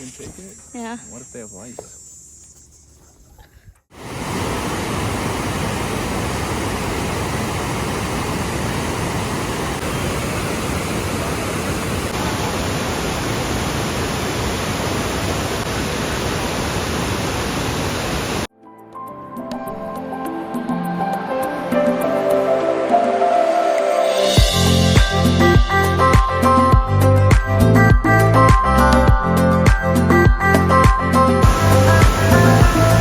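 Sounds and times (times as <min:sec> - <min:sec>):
waterfall rushing: 0:04.0 - 0:18.5, 0:31.4 - 0:33.0.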